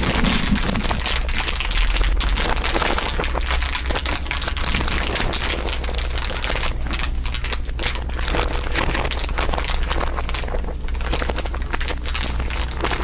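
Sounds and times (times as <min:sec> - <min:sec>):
crinkly material crumpling: 0:00.0 - 0:13.0
steady low hum: 0:00.0 - 0:13.0.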